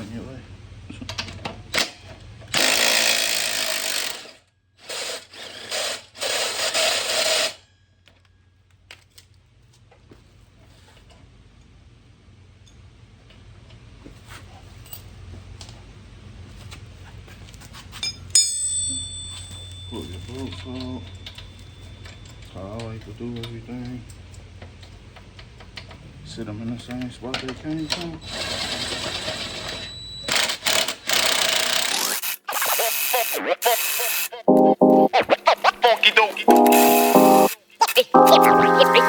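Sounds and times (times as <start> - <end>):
power tool bursts: 2.6 - 4.2.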